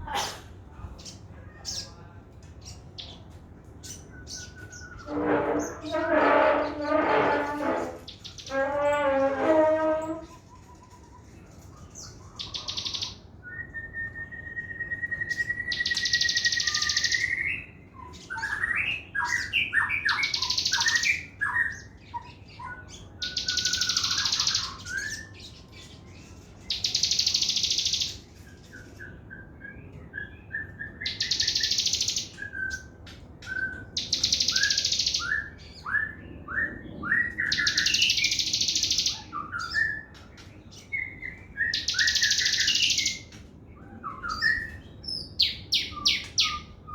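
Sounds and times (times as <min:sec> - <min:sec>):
long rising bird whistle: 0:13.4 - 0:17.7
songbird rattling trills: 0:15.7 - 0:17.4, 0:23.2 - 0:25.1, 0:26.5 - 0:28.7, 0:31.0 - 0:32.4, 0:33.4 - 0:35.4, 0:37.4 - 0:39.7, 0:41.7 - 0:43.4.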